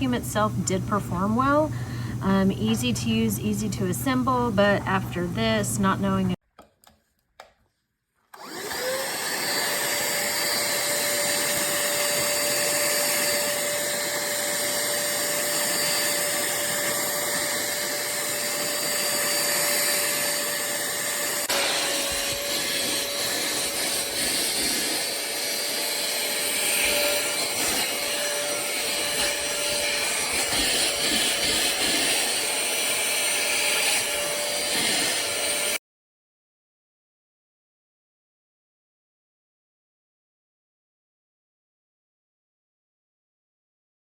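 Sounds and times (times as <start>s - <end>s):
handheld vacuum cleaner whine: 8.3s - 35.8s.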